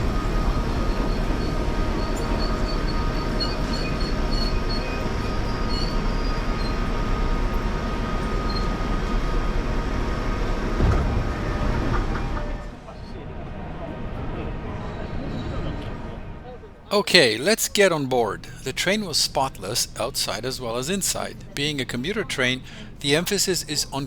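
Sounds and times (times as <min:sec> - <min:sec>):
electric train running: 0:00.0 - 0:12.7
wheel or brake squeals: 0:00.6 - 0:09.1.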